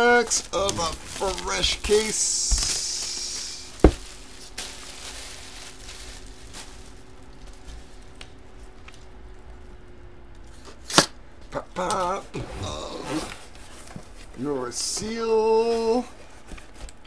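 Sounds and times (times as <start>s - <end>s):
faint steady hum: 0.0s - 17.0s
sharp knock on box: 3.8s - 4.0s.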